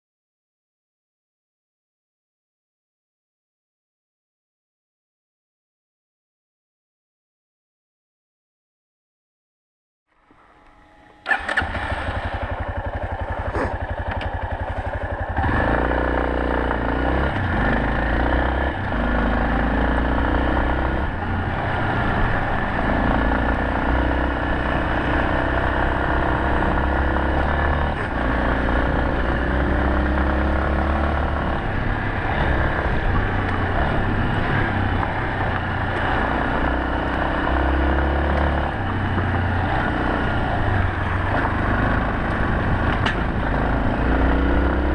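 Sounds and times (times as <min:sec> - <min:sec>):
motorcycle engine idling and revving: 0:10.1 - 0:44.9.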